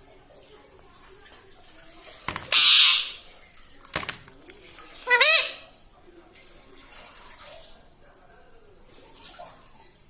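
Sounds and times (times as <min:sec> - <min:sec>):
parrot screeching: 0:02.3 - 0:03.3, 0:05.0 - 0:05.7
parrot squawks: 0:02.3 - 0:03.3, 0:05.0 - 0:05.7.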